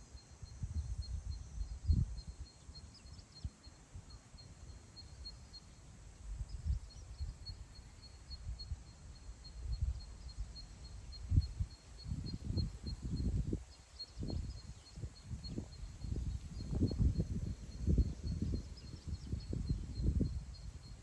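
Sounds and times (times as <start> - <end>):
faint high chirp: 0.0 - 21.0
wind buffeting microphone: 11.1 - 21.0.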